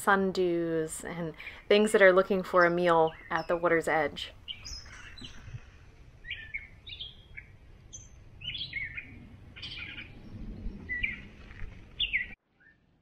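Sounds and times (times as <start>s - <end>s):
songbird chirping: 0.3s - 12.9s
faint low rumble: 4.2s - 12.4s.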